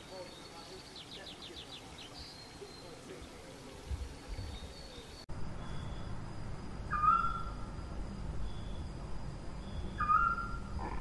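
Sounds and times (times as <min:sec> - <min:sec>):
faint bird chirps: 0:00.0 - 0:06.2, 0:06.9 - 0:07.7, 0:09.6 - 0:10.7
whistled bird call: 0:06.9 - 0:07.6, 0:09.7 - 0:10.7.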